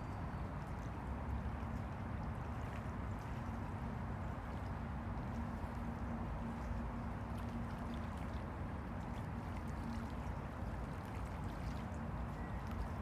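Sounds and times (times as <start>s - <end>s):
water splashes and drips: 7.2s - 13.0s.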